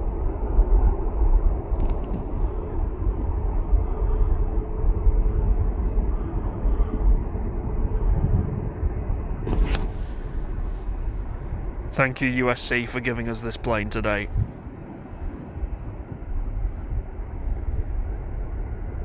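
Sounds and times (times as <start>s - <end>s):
faint hum: 0.0s - 19.0s
low jet engine rumble: 0.0s - 19.0s
rush of noise: 9.4s - 18.1s.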